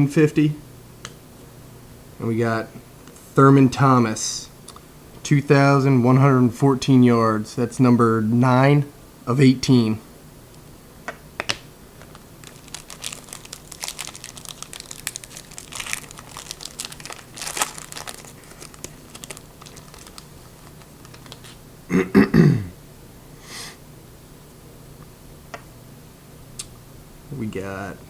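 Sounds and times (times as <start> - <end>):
wrapper crinkling and tearing: 12.0 - 21.6.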